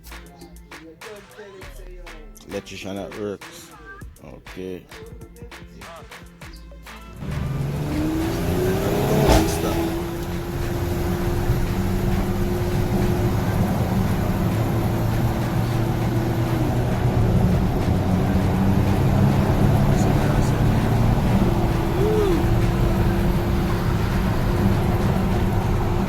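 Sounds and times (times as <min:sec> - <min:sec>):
sharp knock: 0:07.2 - 0:12.4
car engine running: 0:07.2 - 0:26.0
rising tone: 0:07.2 - 0:26.0.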